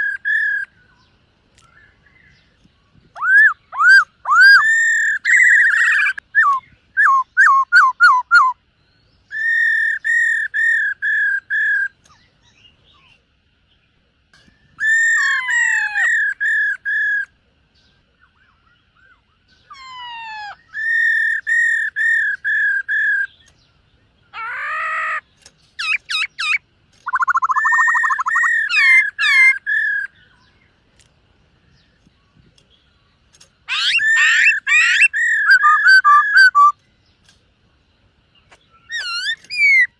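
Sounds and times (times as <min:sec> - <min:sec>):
laughingthrush whistled song: 0:03.1 - 0:08.6, 0:25.8 - 0:30.5, 0:33.7 - 0:36.8, 0:38.7 - 0:39.9.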